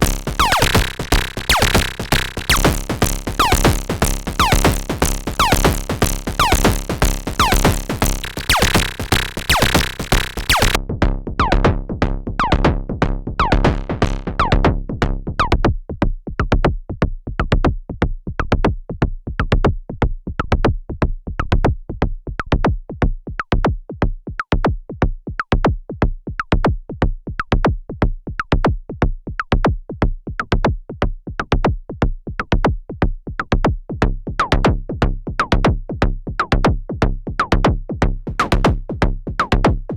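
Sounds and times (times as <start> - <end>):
drum synthesizer percussion pattern: 0.0 - 10.8, 13.4 - 14.8, 34.4 - 34.8, 35.4 - 35.7, 36.4 - 36.7, 37.4 - 39.9.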